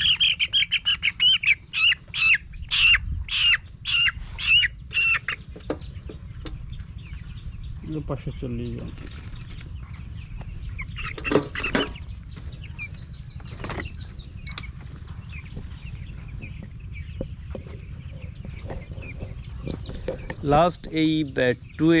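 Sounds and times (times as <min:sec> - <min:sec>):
chicks peeping: 0:00.0 - 0:22.0
wing flapping: 0:08.8 - 0:09.9, 0:11.0 - 0:12.6, 0:13.4 - 0:16.8.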